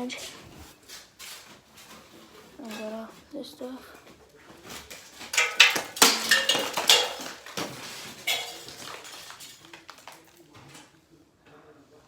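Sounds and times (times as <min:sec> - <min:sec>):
metal objects clattering: 0:01.8 - 0:03.2, 0:04.6 - 0:10.9.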